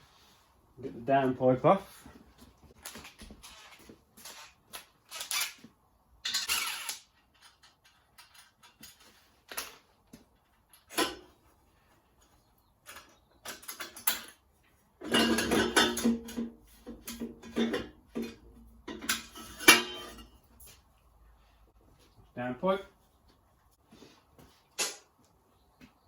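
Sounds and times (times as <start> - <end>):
hand tools clicking and knocking on metal: 2.4 - 20.9, 24.4 - 25.4.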